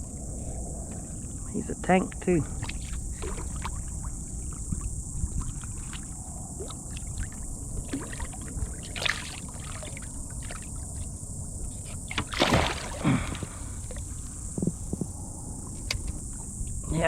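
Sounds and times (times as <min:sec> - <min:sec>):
splash: 0:02.6 - 0:10.9, 0:12.0 - 0:14.0.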